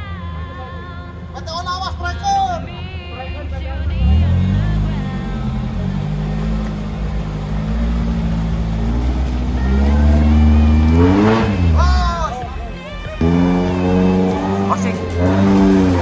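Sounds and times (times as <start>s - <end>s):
engine revving: 1.4s - 16.0s.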